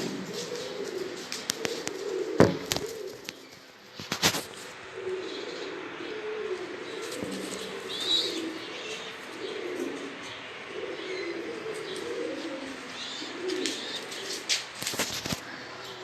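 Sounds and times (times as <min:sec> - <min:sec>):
pigeons cooing: 0:00.0 - 0:16.0
small birds chirping: 0:05.1 - 0:16.0.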